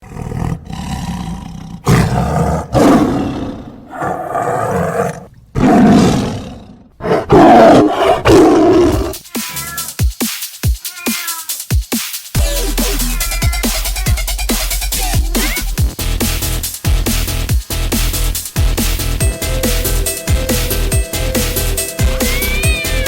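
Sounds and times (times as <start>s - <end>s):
big cats roaring: 0.0s - 9.2s
electronic beat with thumping kicks: 9.1s - 23.0s.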